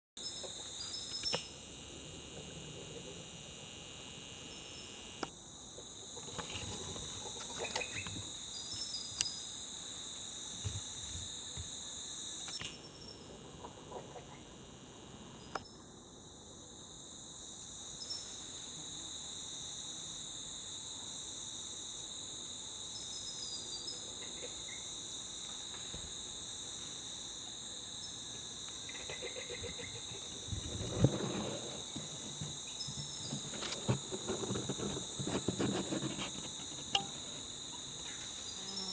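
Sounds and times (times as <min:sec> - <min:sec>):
insects shrill tones: 0:28.0 - 0:38.9
rustling: 0:30.4 - 0:37.6.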